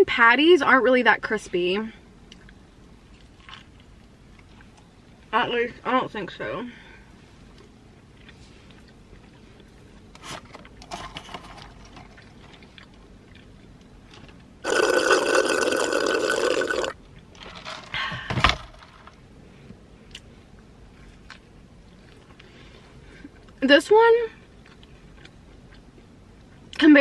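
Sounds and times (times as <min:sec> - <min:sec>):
drink slurped through a straw: 0:14.6 - 0:17.0.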